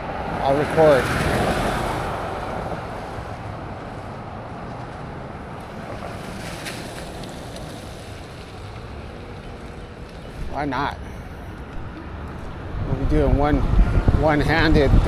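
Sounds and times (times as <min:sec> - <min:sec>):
wind rushing over microphone: 0:00.0 - 0:06.3, 0:10.2 - 0:15.0
road noise: 0:00.0 - 0:15.0.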